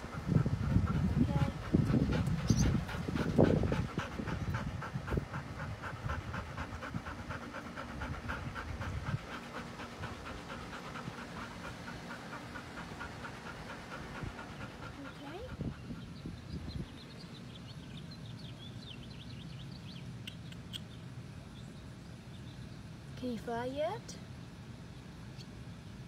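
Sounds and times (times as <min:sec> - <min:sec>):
dog panting: 0:00.0 - 0:16.4.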